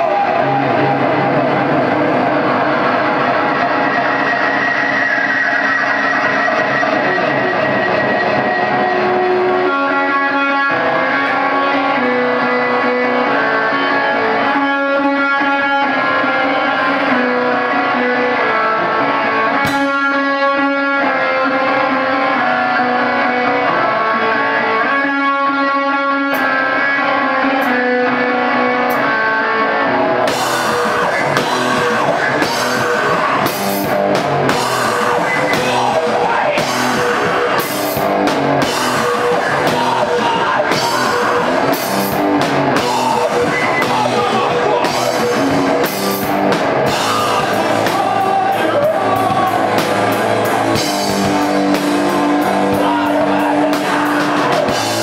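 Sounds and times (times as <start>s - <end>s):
guitar sustained notes: 0.0s - 55.0s
rock band playing: 0.0s - 55.0s
drums playing loudly: 19.0s - 20.3s, 30.2s - 55.0s.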